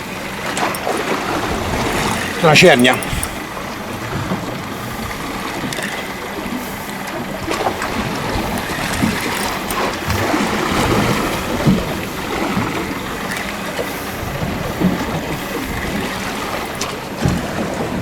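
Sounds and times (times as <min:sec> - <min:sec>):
water lapping against boat hull: 0:00.0 - 0:18.0.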